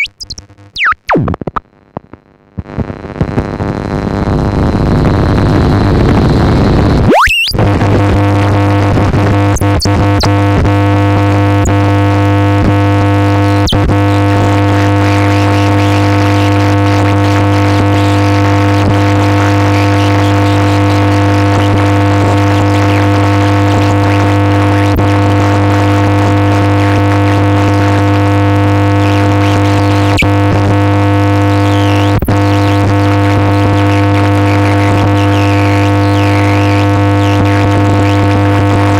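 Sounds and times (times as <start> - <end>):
high sliding tones: 7.1 - 7.6.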